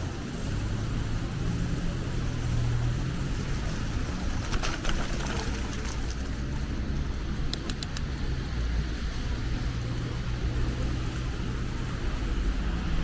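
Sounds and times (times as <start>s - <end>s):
city road traffic rumble: 0.0s - 13.0s
quick sharp clicks: 7.5s - 8.2s.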